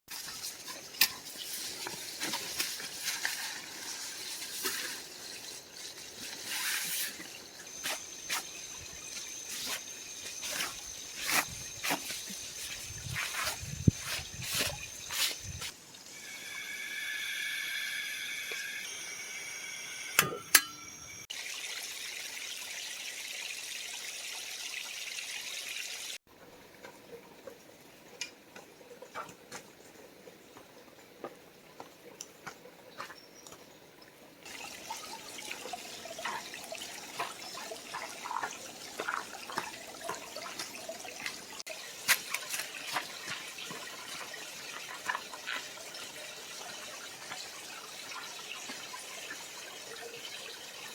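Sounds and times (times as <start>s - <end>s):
creek water trickling: 0.1s - 16.4s, 21.3s - 50.9s.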